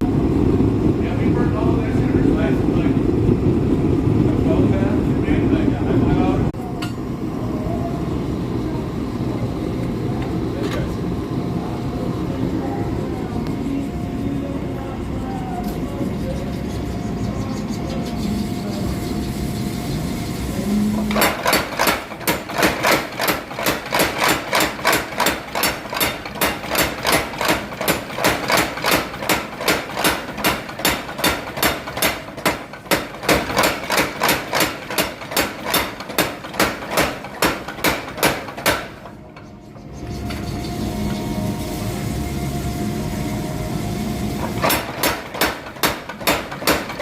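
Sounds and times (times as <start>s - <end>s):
low running hum: 0.0s - 47.0s
power hammer striking metal: 21.0s - 39.2s, 44.5s - 47.0s.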